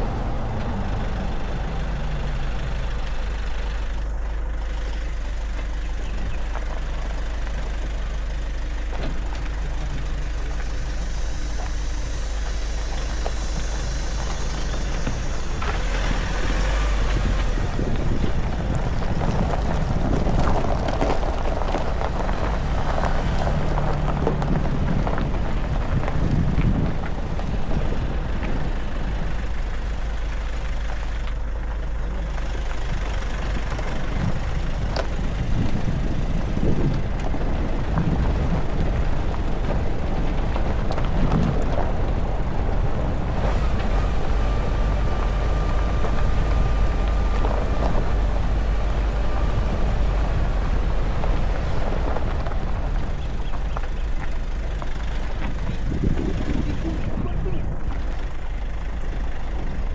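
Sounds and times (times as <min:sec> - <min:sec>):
engine and road rumble: 0:00.0 - 0:59.9
thin high whine: 0:09.9 - 0:17.8.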